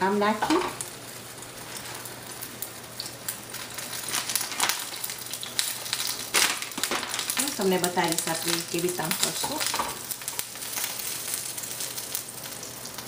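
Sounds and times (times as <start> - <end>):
tortillas sizzling in a skillet: 0.0 - 13.0
plastic bag tearing open: 4.0 - 7.6.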